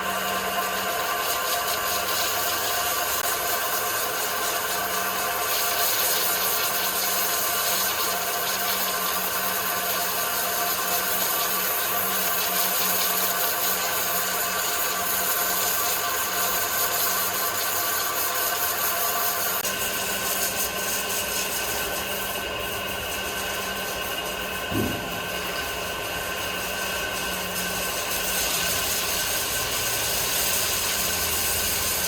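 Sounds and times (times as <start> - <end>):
woodworking machine running: 15.2 - 32.0.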